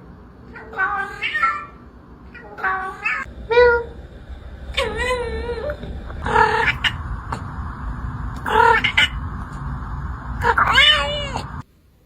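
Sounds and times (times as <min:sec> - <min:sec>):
steady background hiss: 0:03.0 - 0:12.0.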